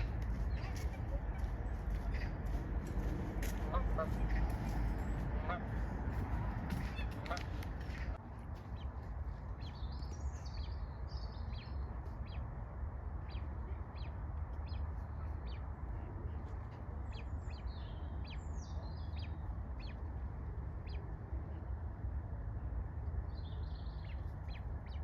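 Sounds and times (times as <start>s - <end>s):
steady low rumble: 0.0s - 25.0s
bird chirps and peeping calls: 9.6s - 12.5s, 13.2s - 16.1s, 17.0s - 20.0s, 23.3s - 25.0s.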